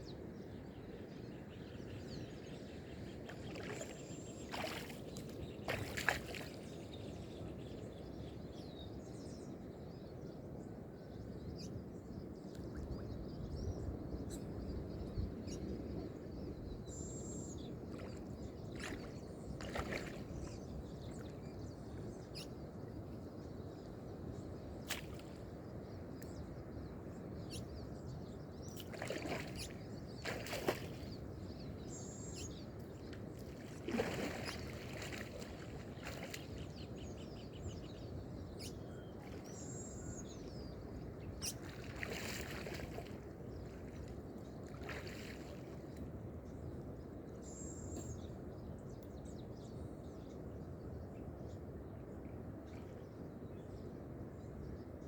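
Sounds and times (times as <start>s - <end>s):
faint bird chirps: 0.0s - 8.3s, 28.7s - 43.8s
lake water lapping: 2.9s - 7.1s, 17.2s - 22.1s, 28.6s - 37.8s, 38.9s - 40.4s, 41.4s - 46.1s
water sloshing and splashing: 3.0s - 6.8s, 17.8s - 21.4s, 28.6s - 31.3s, 33.0s - 37.2s, 41.4s - 46.1s.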